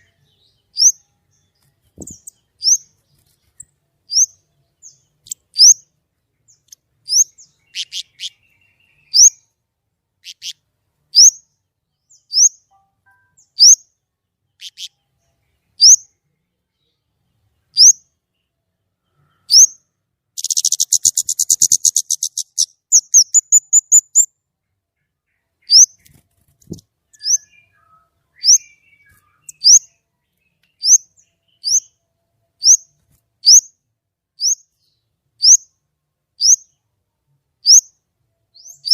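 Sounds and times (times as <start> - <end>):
songbird whistling and trilling: 0.0 - 1.1, 2.0 - 2.9, 4.1 - 5.8, 7.1 - 9.4, 11.2 - 11.4, 15.8 - 16.0, 19.5 - 19.8, 20.4 - 24.3, 27.1 - 32.0, 34.4 - 34.6, 36.4 - 36.7, 37.6 - 37.9, 38.5 - 38.9.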